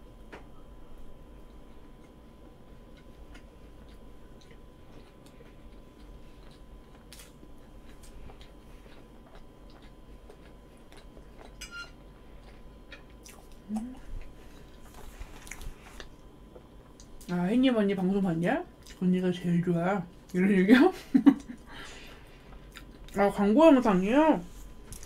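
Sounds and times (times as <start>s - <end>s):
person chewing cake: 1.2s - 17.4s, 18.7s - 19.1s, 21.4s - 23.3s.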